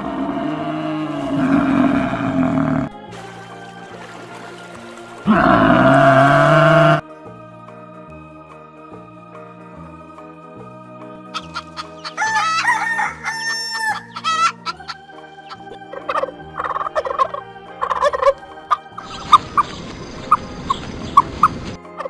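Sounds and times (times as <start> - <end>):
rooster crowing: 11.4 - 18.2
chicken clucking: 11.4 - 21.8.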